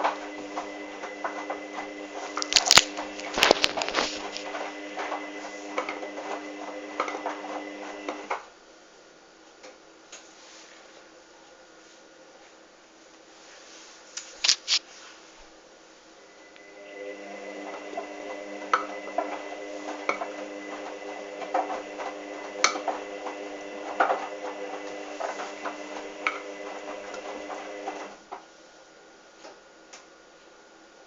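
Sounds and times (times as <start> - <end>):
washing machine motor hum: 0.0 - 8.4, 16.2 - 28.3.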